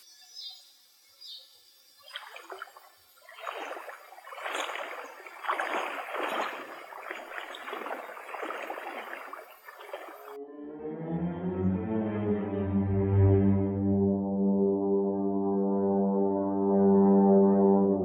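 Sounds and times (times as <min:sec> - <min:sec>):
creek water splashing: 0:02.0 - 0:10.4.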